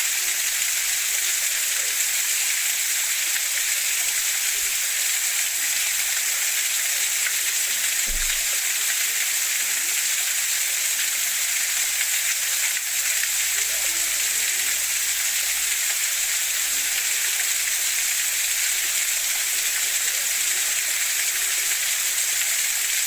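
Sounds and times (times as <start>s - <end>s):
low thump: 8.1s - 8.4s.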